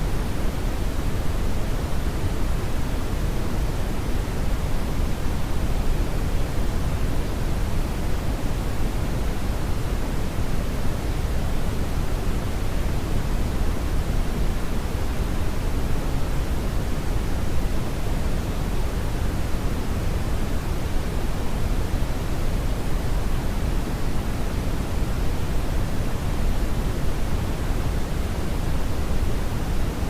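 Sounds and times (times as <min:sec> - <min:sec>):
brown noise rumble and hiss: 0:00.0 - 0:30.0.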